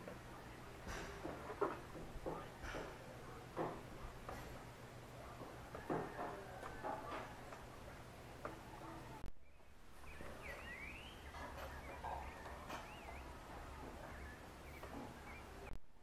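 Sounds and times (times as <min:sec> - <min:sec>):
bird whistled calls: 0:09.4 - 0:13.4.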